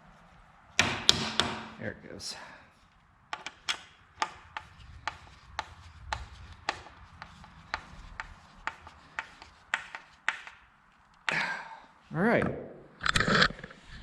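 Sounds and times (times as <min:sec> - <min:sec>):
hand tool clicking: 0:03.3 - 0:11.4.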